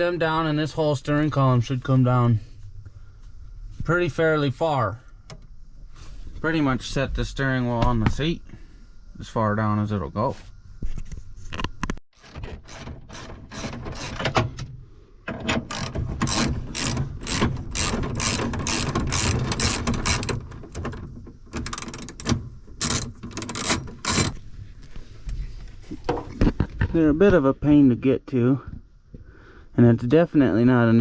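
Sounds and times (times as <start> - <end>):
ratchet wrench clicking: 15.7 - 20.4.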